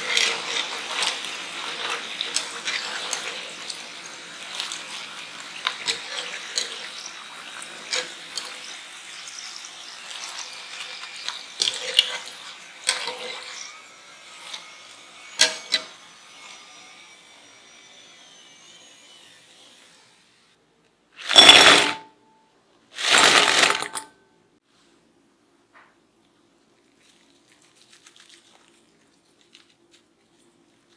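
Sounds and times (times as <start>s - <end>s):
utensils and cookware clinking: 0.0s - 16.7s, 21.2s - 22.1s, 23.0s - 24.1s.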